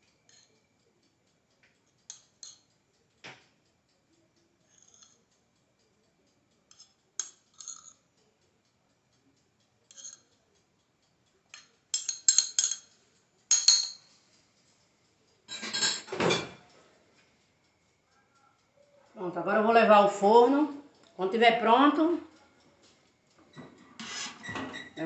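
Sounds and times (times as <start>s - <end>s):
utensil clinking on glass dish: 2.1s - 2.6s, 4.7s - 5.2s, 6.7s - 8.0s, 9.9s - 10.3s, 11.5s - 12.9s, 13.5s - 14.1s, 15.5s - 16.6s
glass dish knocking and scraping: 13.5s - 14.0s, 15.5s - 16.6s.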